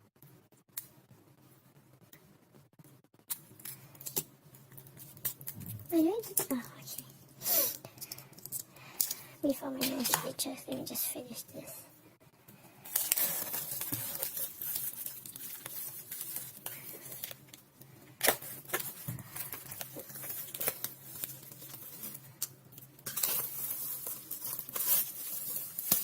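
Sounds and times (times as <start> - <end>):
plastic packaging crinkling: 12.9 - 26.0.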